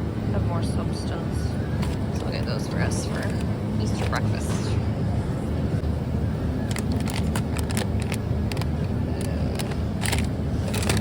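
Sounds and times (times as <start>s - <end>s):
steady low rumble: 0.0s - 11.0s
shopping cart and packages rattling: 6.7s - 11.0s.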